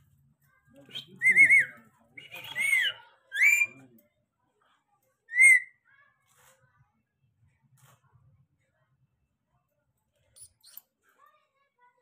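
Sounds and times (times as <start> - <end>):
parrot whistled calls: 1.0 - 3.8, 5.3 - 5.8.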